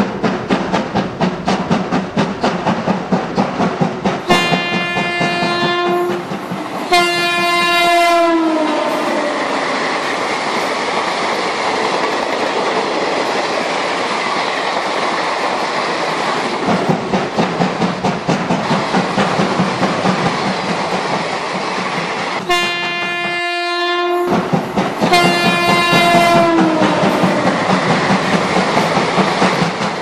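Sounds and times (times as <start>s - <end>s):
train wheels clicking on track: 0.0s - 30.0s
train horn blasts: 4.3s - 6.3s, 6.9s - 9.7s, 22.4s - 24.4s, 25.1s - 27.6s.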